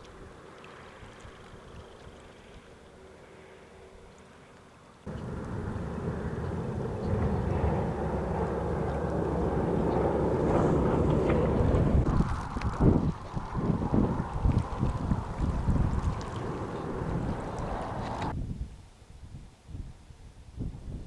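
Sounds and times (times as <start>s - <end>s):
strong wind buffeting microphone: 5.1s - 21.0s.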